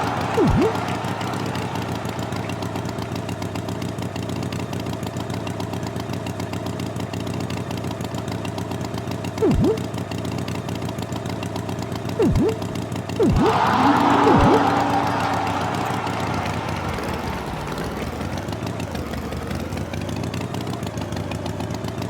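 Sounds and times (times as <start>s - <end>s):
short swooping sound: 9.4s - 9.8s, 12.2s - 14.6s.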